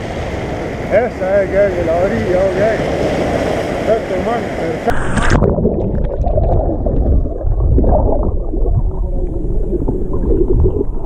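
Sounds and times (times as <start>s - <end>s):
muffled underwater surf rumble: 3.1s - 11.0s.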